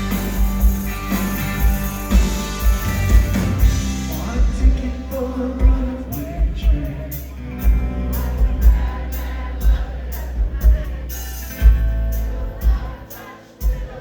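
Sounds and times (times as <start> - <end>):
rock band playing live: 0.0 - 14.0
person singing: 3.9 - 7.4.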